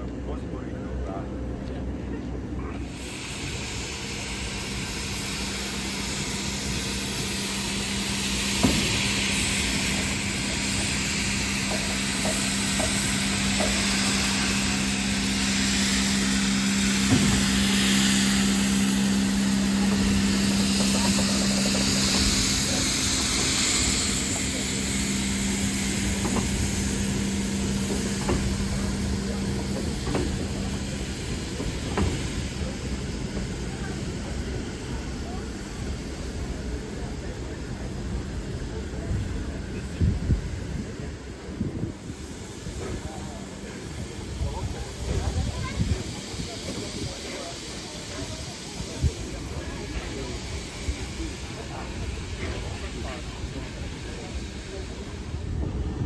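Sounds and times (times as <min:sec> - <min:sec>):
steam locomotive hissing: 0:00.0 - 0:56.0.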